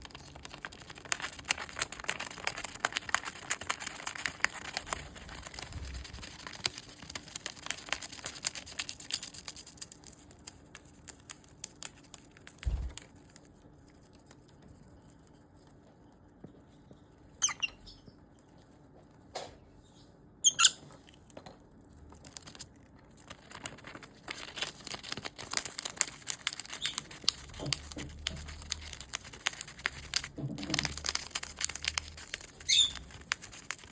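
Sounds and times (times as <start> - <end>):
bird shredding paper: 0.0 - 10.1, 22.2 - 33.9.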